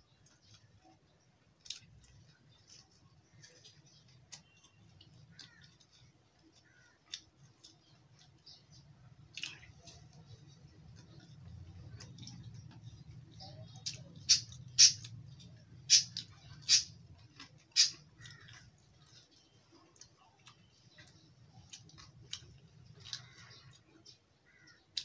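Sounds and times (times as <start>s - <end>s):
faint chewing: 0.0s - 25.0s.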